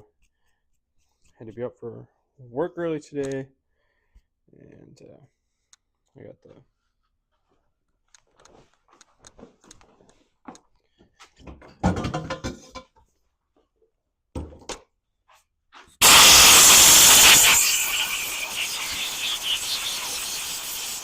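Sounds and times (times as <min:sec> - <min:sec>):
hiss of escaping air: 0:16.0 - 0:21.0.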